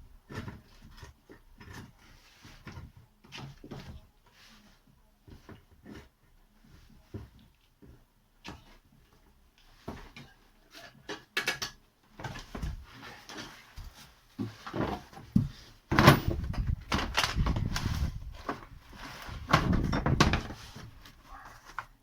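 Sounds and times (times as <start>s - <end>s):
knocks and metal clatter of tools: 9.9s - 21.2s.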